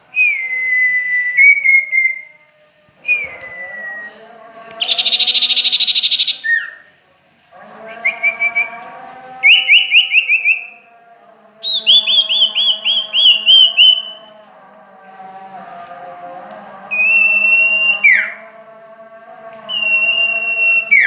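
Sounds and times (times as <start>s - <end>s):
bird down-slurred chirps: 4.8s - 6.8s.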